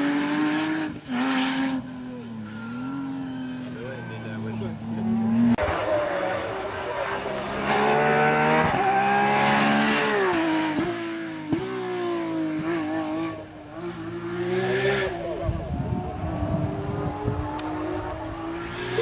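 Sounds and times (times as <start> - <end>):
racing car engine accelerating: 0.0 - 19.0.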